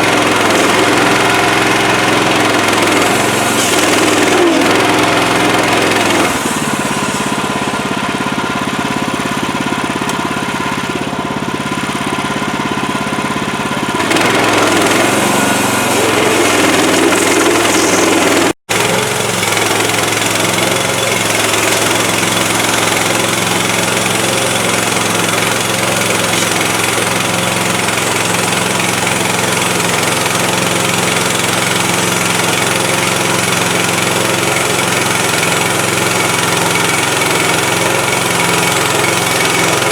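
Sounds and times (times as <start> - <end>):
sawmill gas engine running: 0.0 - 39.9.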